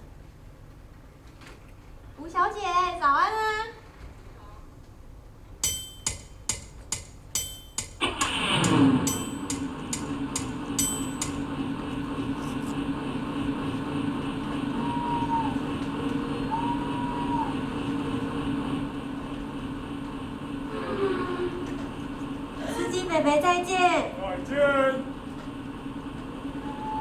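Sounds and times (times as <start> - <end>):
engine-like hum: 5.7 - 27.0.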